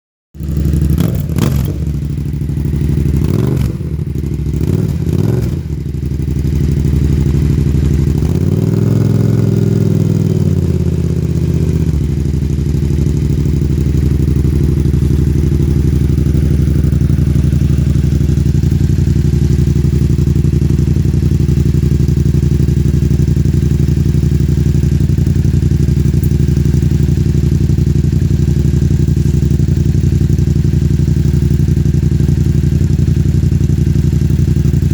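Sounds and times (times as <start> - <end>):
motorcycle engine revving and idling: 0.4 - 34.9.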